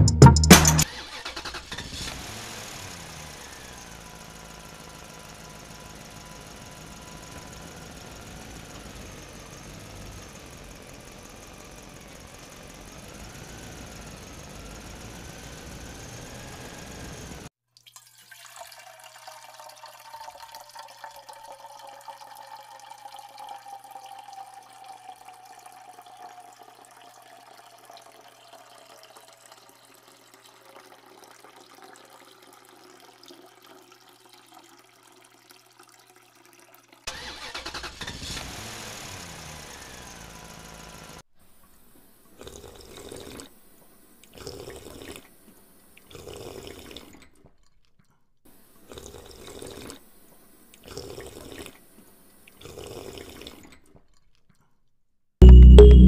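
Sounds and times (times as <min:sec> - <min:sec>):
water splashing from hand pump: 0:37.1 - 0:39.5.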